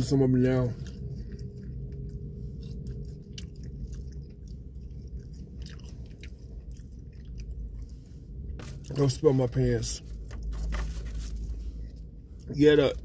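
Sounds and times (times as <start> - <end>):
person chewing fries: 0.0 - 9.3
steady low hum: 0.0 - 13.0.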